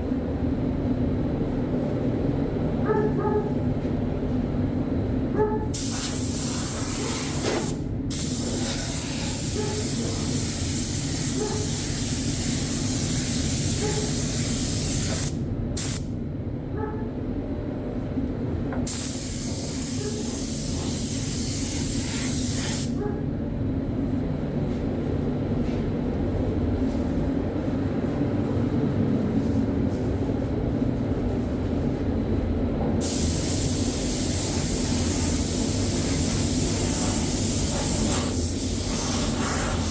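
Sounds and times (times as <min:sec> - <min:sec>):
spray gun hissing: 0:05.8 - 0:16.0, 0:18.9 - 0:22.9, 0:33.0 - 0:39.9.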